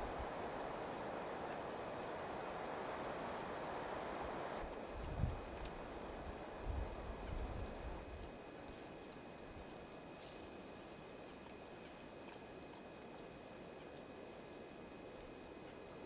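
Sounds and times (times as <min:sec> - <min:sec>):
songbirds chirping: 0:00.0 - 0:06.5.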